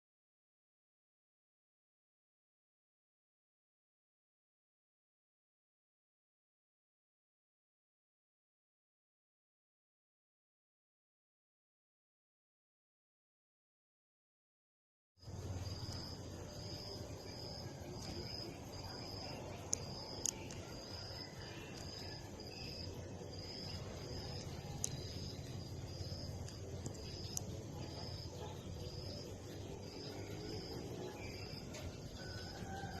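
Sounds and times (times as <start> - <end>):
insect chirping: 15.2 - 33.0
sharp clicks: 19.6 - 22.0, 24.2 - 27.6.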